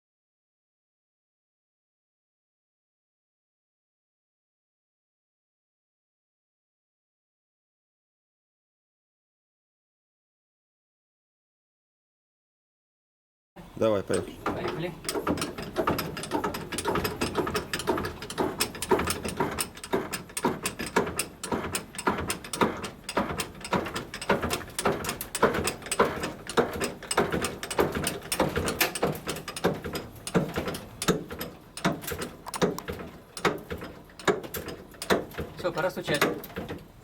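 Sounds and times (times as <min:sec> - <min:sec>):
hammer tapping on sheet metal: 0:14.1 - 0:36.7.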